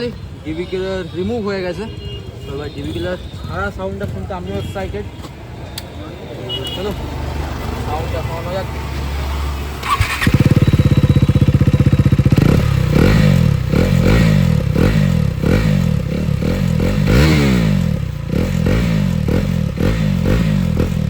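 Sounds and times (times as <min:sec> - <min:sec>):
motorcycle engine idling and revving: 0:06.5 - 0:21.0.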